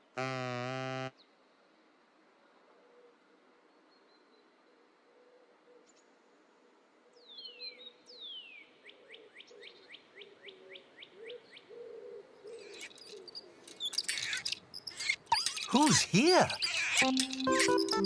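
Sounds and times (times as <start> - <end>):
clicking and rattling: 13.6 - 15.8, 16.5 - 18.0.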